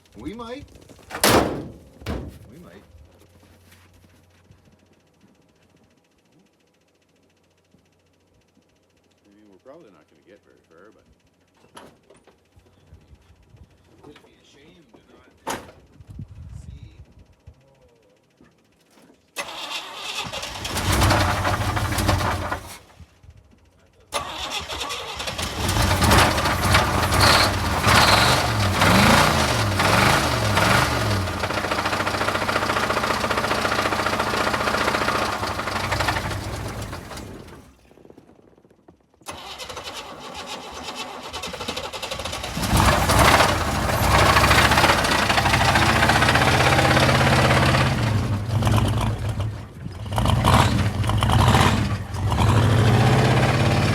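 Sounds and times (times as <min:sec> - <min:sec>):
knocking car engine revving: 0:20.2 - 0:22.8, 0:24.4 - 0:37.6, 0:41.4 - 0:53.9.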